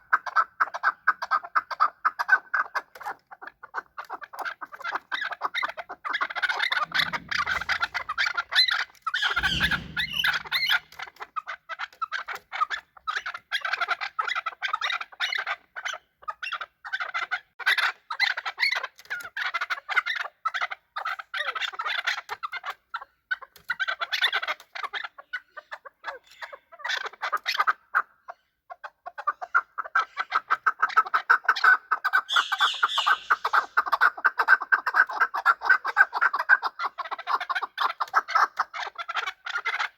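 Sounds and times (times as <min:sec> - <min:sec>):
partridges calling: 0:04.6 - 0:11.0, 0:32.2 - 0:34.5
low rumble: 0:09.4 - 0:10.9.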